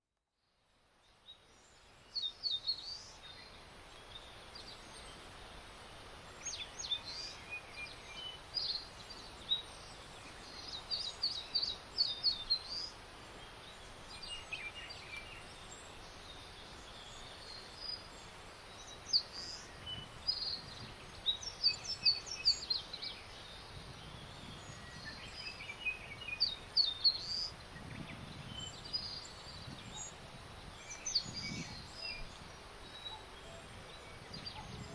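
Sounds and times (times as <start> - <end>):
songbirds chirping: 0.1 - 34.9
steady background hiss: 0.3 - 34.9.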